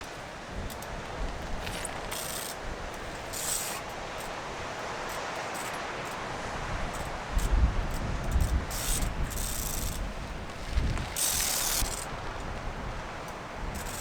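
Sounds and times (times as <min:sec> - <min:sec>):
wind blowing over microphone: 0:06.6 - 0:14.0.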